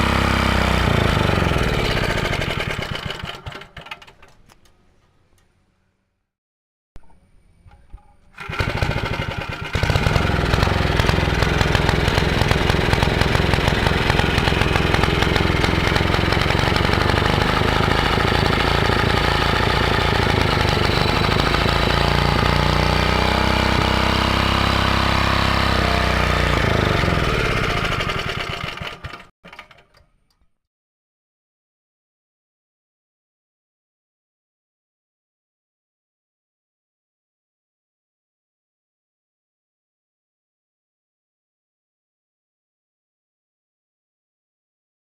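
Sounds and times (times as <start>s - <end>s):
engine starting and running: 0.0s - 5.1s, 7.9s - 30.4s
engine clicks: 1.8s - 5.6s, 7.0s - 22.5s, 27.3s - 30.5s.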